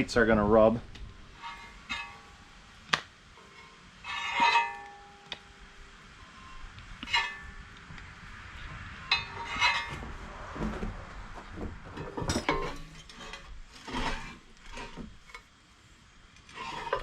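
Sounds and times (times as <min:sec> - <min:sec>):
steel plates clanking: 0:00.9 - 0:07.8, 0:09.0 - 0:11.0, 0:11.9 - 0:15.4.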